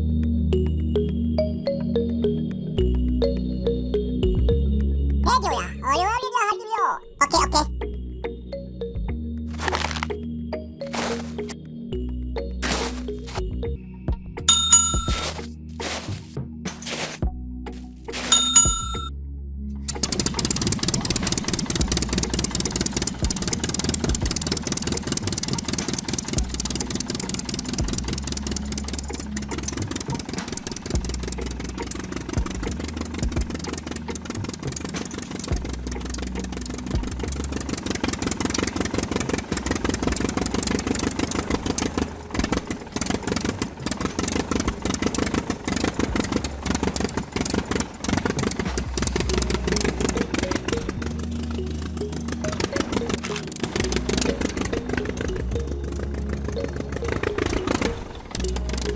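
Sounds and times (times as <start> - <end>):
small tractor motor rattling: 18.1 - 19.1, 19.8 - 58.9.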